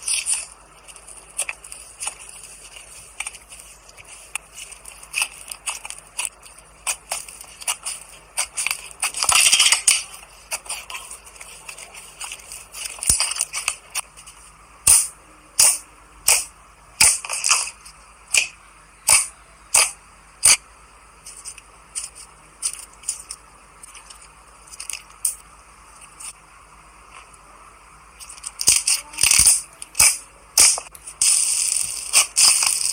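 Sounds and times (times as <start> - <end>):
slime squishing: 0.0 - 15.0.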